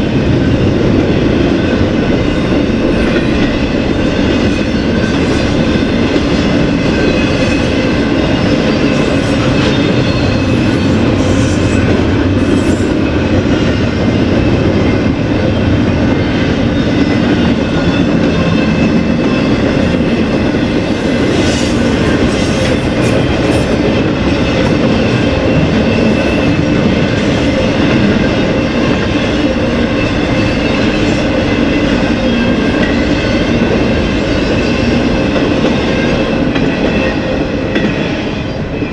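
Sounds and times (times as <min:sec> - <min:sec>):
freight train cars rolling: 0:00.0 - 0:38.9.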